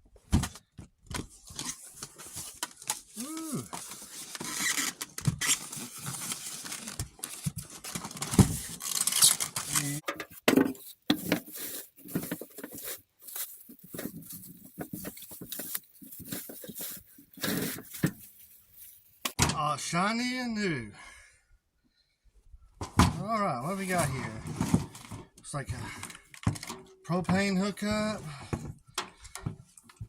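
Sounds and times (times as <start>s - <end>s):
packaging rustling and tearing: 1.4s - 10.0s, 10.7s - 19.4s
parts clicking and knocking: 9.5s - 18.2s.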